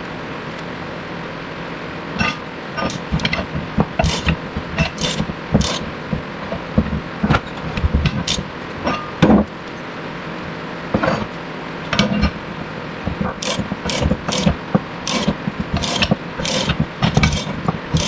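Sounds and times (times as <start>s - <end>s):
hand tools clanking on metal: 2.2s - 9.5s, 11.0s - 18.0s.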